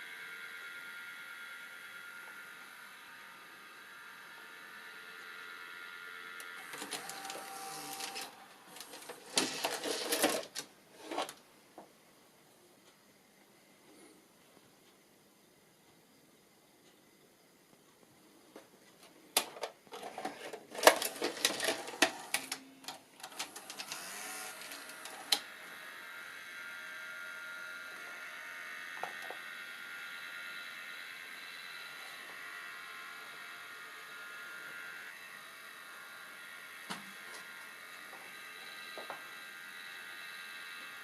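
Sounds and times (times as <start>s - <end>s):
motor whir with high whine: 0.0s - 10.3s, 20.1s - 41.0s
video recorder clicks and clunks: 19.4s - 25.5s.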